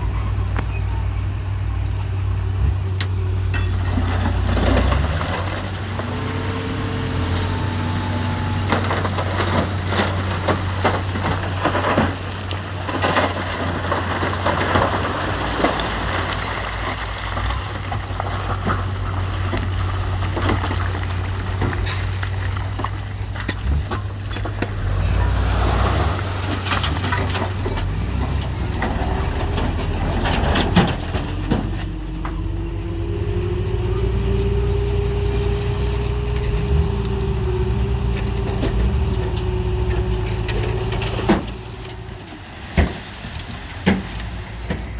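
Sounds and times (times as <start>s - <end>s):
heavy diesel engine drone: 0.0s - 15.2s, 17.8s - 44.9s
metallic clanks and knocks: 3.0s - 6.4s, 18.0s - 32.6s.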